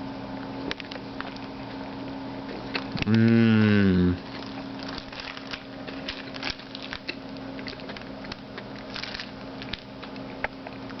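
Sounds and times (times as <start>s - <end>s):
steady low hum: 0.0s - 11.0s
mouth clicks and smacks chewing: 9.7s - 11.0s.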